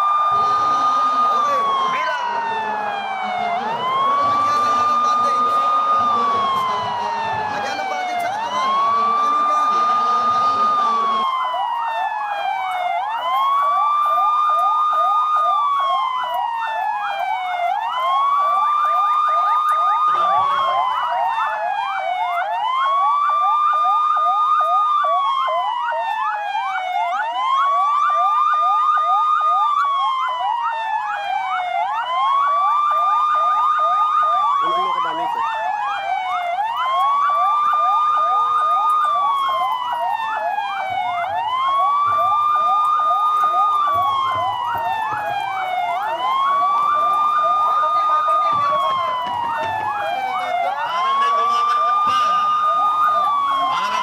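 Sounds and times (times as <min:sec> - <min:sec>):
electronic siren wailing: 0:00.0 - 0:54.0
rapid siren warble: 0:00.0 - 0:54.0.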